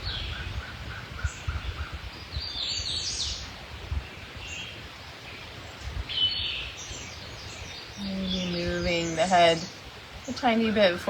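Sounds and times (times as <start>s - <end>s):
birds singing: 0.0s - 11.0s
low uneven rumble: 5.6s - 11.0s.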